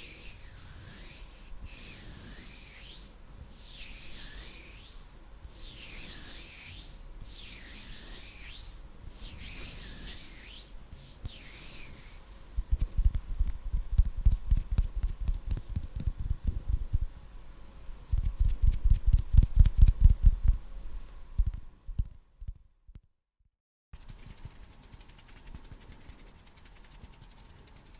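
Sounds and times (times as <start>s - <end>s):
hands rubbing together: 0.0s - 12.2s, 24.0s - 27.9s
muffled patting on microphone: 12.6s - 17.1s.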